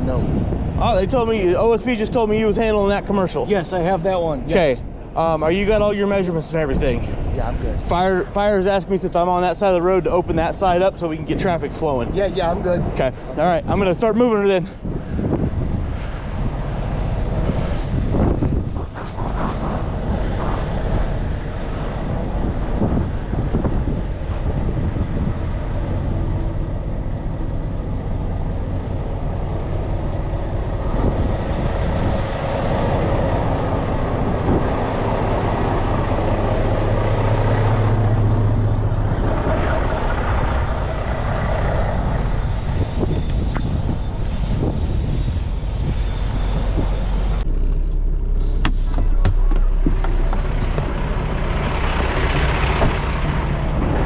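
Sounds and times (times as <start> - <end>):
truck diesel engine running: 14.5 - 54.0.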